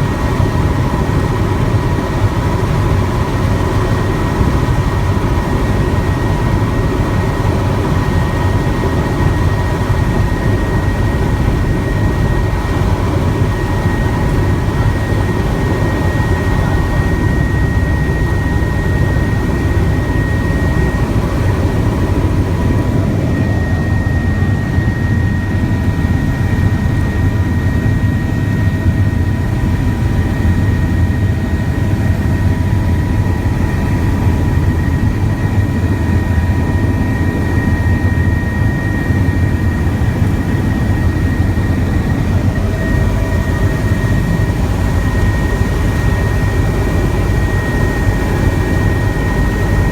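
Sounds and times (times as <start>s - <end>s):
helicopter rotor drone: 0.0s - 49.9s
high turbine whine: 0.0s - 49.9s.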